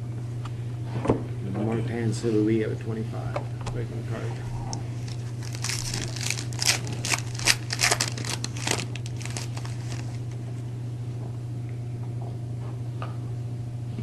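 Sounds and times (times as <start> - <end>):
steady low hum: 0.0 - 14.0
foil wrapper crinkling and tearing: 4.9 - 10.4.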